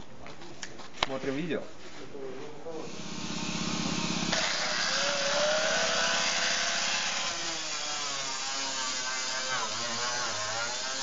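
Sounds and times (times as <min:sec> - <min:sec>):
power tool cutting sheet metal: 0:02.9 - 0:11.0.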